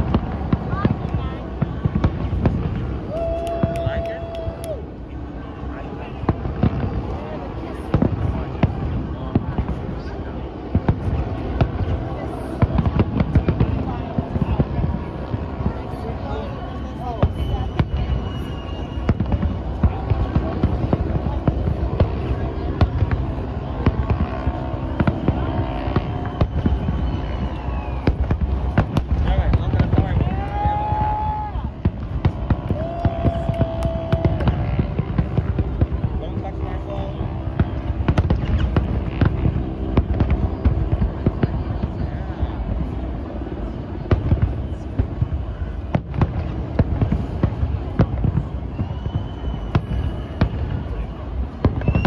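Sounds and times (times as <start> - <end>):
distant fireworks bangs: 0.0 - 4.4, 6.1 - 52.0
steady low rumble: 0.0 - 52.0
thin whistle: 16.8 - 19.4, 26.2 - 28.1, 48.6 - 52.0
faint falling whistle: 48.6 - 51.1, 51.7 - 52.0.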